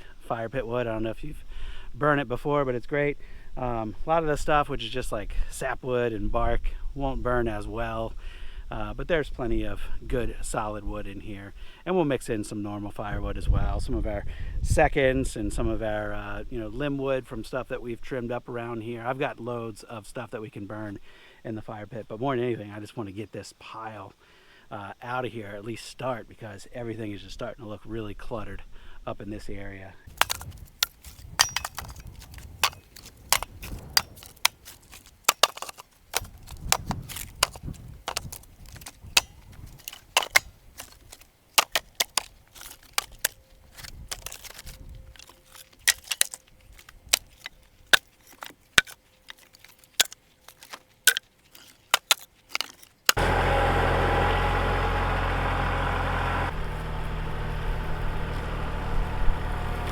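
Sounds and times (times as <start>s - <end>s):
wood slabs clattering: 30.1s - 54.2s
engine running steadily: 53.2s - 59.9s.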